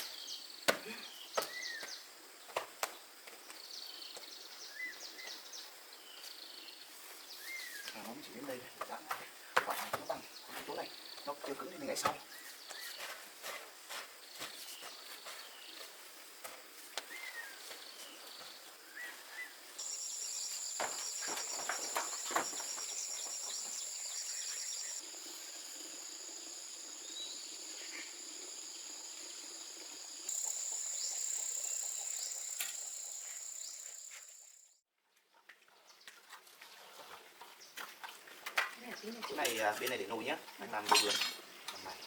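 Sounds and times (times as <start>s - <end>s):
insects singing: 19.8s - 34.5s.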